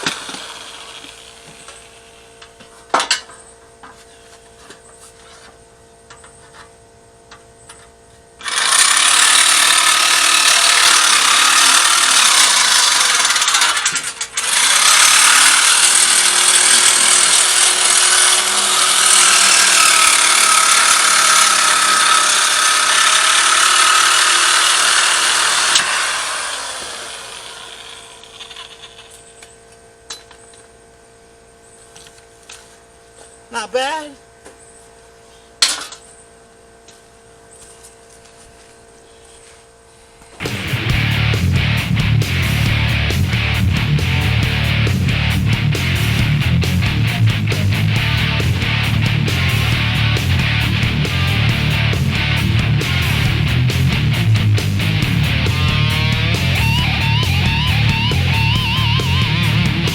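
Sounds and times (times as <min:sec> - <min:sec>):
handheld power tool motor: 0:00.0 - 0:02.0, 0:08.4 - 0:29.4.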